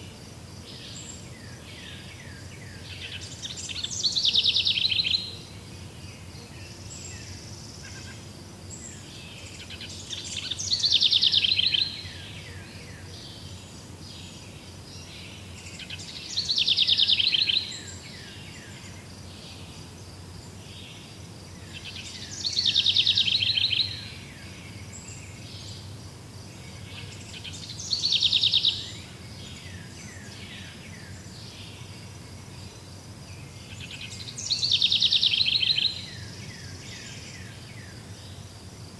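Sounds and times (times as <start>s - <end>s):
faint calls of other birds: 0.0s - 38.7s.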